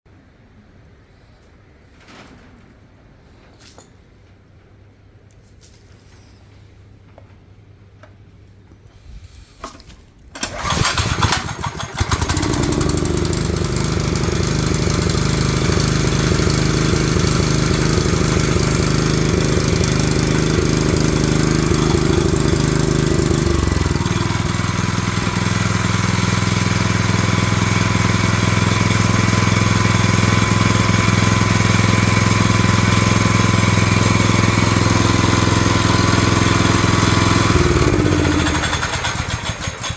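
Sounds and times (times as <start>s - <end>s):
snowblower engine starting and running: 9.6s - 39.9s.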